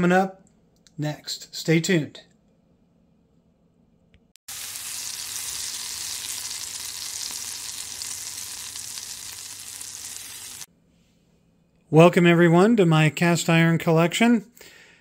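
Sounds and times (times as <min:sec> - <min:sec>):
food sizzling in a pan: 0:04.5 - 0:10.7.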